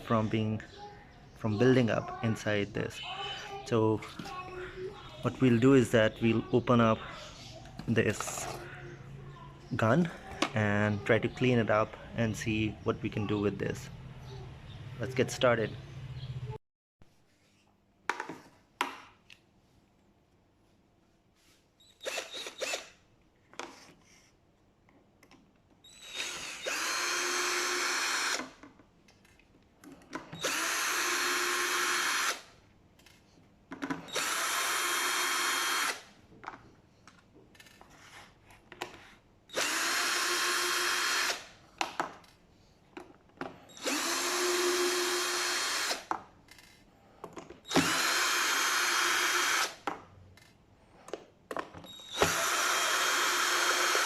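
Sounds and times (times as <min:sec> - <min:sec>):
power drill running: 0:22.0 - 0:23.0, 0:25.8 - 0:28.6, 0:30.4 - 0:32.5, 0:34.1 - 0:36.1, 0:39.5 - 0:41.5, 0:43.7 - 0:46.1, 0:47.6 - 0:49.8, 0:51.9 - 0:54.0.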